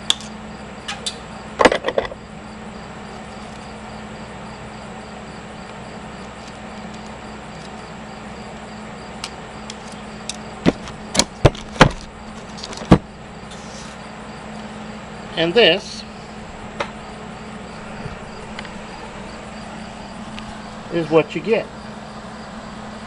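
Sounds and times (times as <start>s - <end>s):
steady low hum: 0.0s - 23.0s
sharp clicks and knocks: 9.2s - 13.1s.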